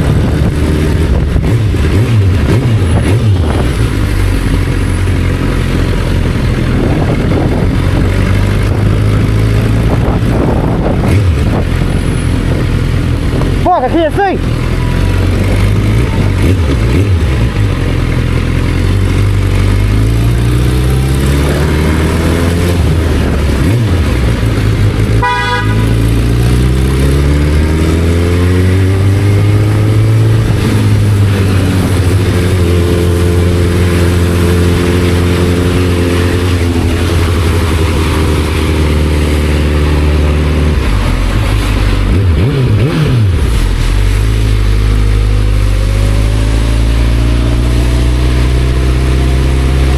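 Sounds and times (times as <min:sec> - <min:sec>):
motorcycle engine accelerating: 0:00.0 - 0:49.9
horn toot: 0:25.2 - 0:26.3.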